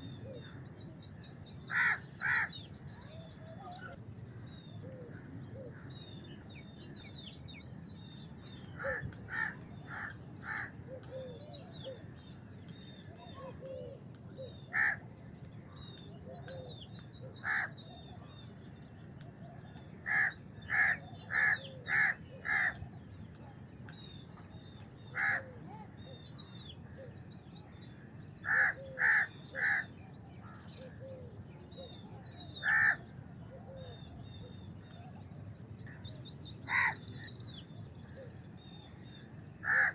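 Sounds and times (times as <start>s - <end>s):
small birds chirping: 0.0s - 39.9s
crows cawing: 1.7s - 2.6s, 8.8s - 10.8s, 14.7s - 15.0s, 17.4s - 17.8s, 20.0s - 22.8s, 25.2s - 25.4s, 28.4s - 29.9s, 32.6s - 33.0s, 36.7s - 37.0s, 39.6s - 39.9s.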